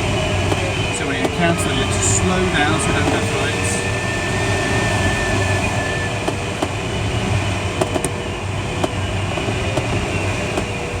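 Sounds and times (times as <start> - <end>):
sharp clicks in cockpit: 8.8 - 10.7.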